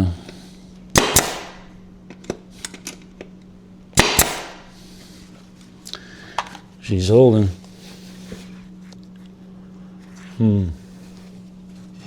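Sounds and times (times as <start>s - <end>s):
staple gun firing into wood: 1.0s - 1.6s, 4.0s - 4.6s.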